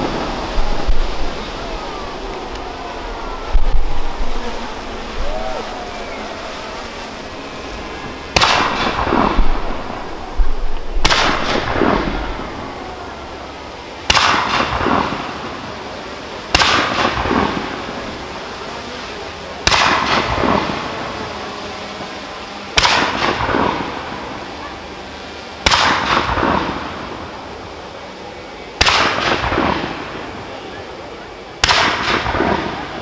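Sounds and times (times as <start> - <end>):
firework bangs with echoes: 8.0 - 12.8, 14.0 - 15.6, 16.5 - 17.9, 19.6 - 20.8, 22.8 - 24.2, 25.6 - 27.1, 28.8 - 30.2, 31.6 - 33.0.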